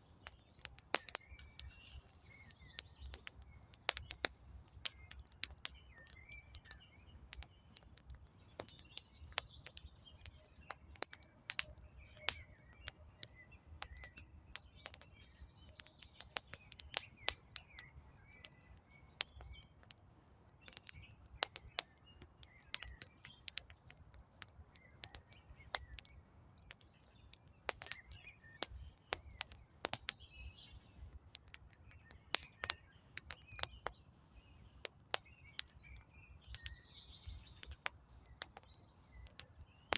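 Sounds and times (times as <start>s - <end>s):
campfire crackling and popping: 0.0s - 39.9s
small birds chirping: 0.0s - 39.9s.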